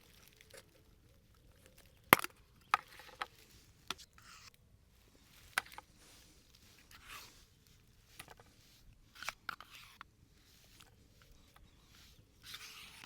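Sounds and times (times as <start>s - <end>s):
short scrape: 5.9s - 7.6s, 11.6s - 13.0s.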